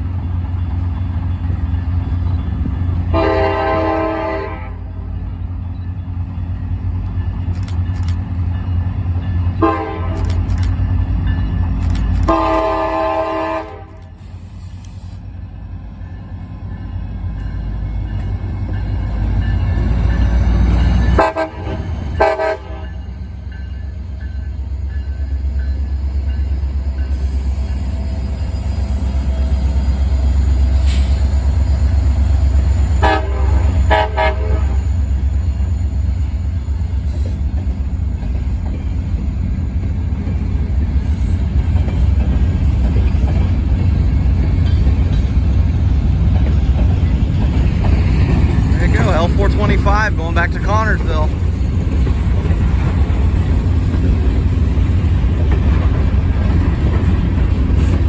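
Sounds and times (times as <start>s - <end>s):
freight train rumbling past: 0.0s - 58.0s
train horn blasts: 3.1s - 5.0s, 9.6s - 10.4s, 12.2s - 14.2s, 20.9s - 23.1s, 32.9s - 35.0s.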